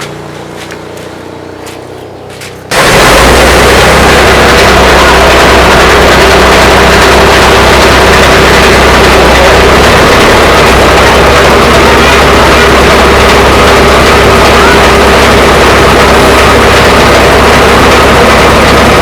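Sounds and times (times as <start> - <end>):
heavy truck engine running: 0.0 - 19.0.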